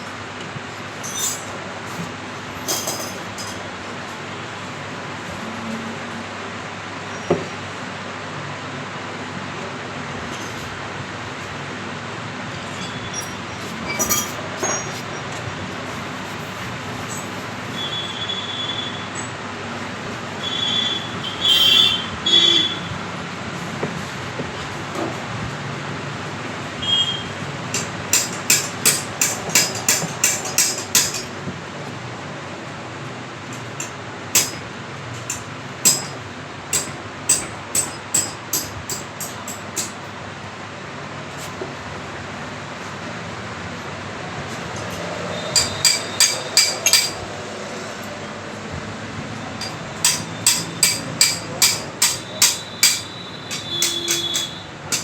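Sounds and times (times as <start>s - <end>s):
steady background noise: 0.0s - 55.0s
hammer tapping on metal: 27.7s - 31.3s, 33.8s - 34.7s, 35.3s - 40.0s, 45.5s - 47.2s, 49.6s - 55.0s
metallic ringing tone: 49.6s - 54.7s.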